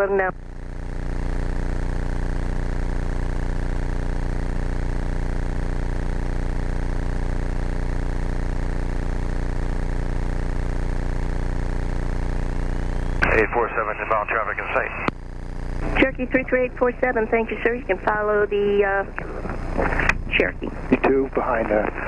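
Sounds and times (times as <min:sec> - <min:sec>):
airplane engine droning in cabin: 0:12.9 - 0:15.1, 0:15.8 - 0:22.0.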